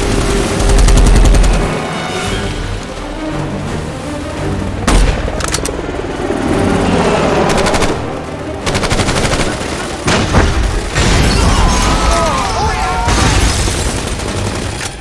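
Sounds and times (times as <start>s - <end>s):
film score music: 0.0s - 15.0s
automatic gunfire: 7.5s - 10.6s.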